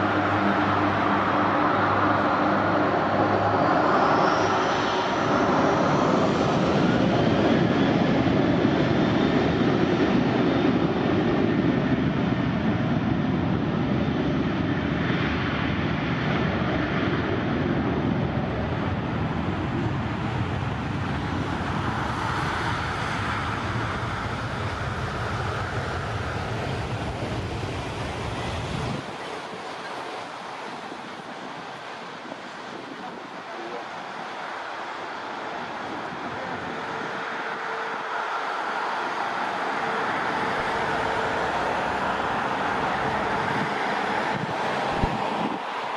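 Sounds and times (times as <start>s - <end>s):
jet airliner engine rumble: 0.0s - 45.9s.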